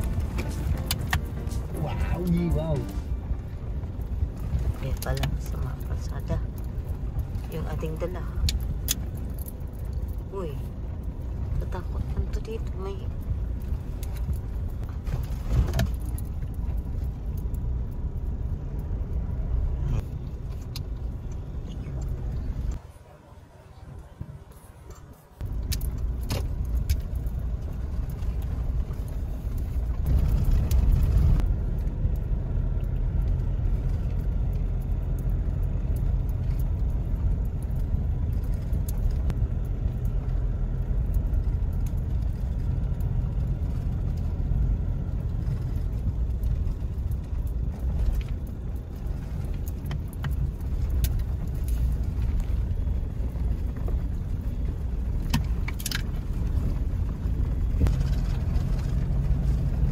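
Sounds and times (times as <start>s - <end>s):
car road and engine rumble: 0.0s - 59.9s
light clicks and rattles: 25.4s - 59.9s.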